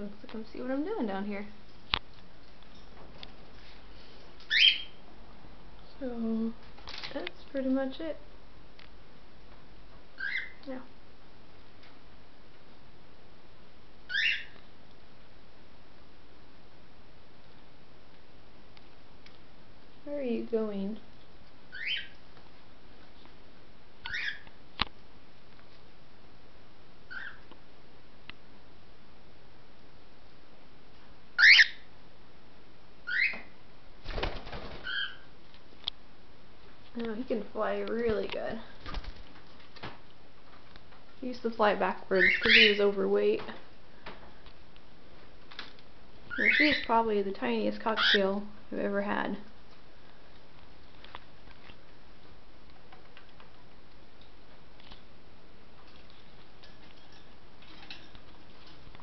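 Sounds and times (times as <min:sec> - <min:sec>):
steady background hiss: 0:00.0 - 0:59.0
cockatiels chirping: 0:04.5 - 0:05.0, 0:10.2 - 0:10.6, 0:14.1 - 0:14.6, 0:21.7 - 0:22.2, 0:24.1 - 0:24.4, 0:27.1 - 0:27.4, 0:31.4 - 0:31.8, 0:33.1 - 0:33.4, 0:34.8 - 0:35.3, 0:42.2 - 0:42.9, 0:46.3 - 0:47.0
wing flaps: 0:34.0 - 0:35.1.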